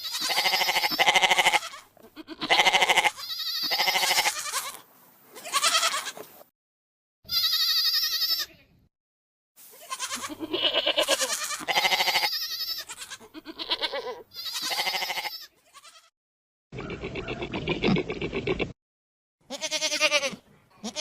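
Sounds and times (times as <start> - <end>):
goats bleating: 0.0 - 4.8, 5.4 - 6.2, 7.3 - 8.6, 9.7 - 16.1, 19.5 - 21.0.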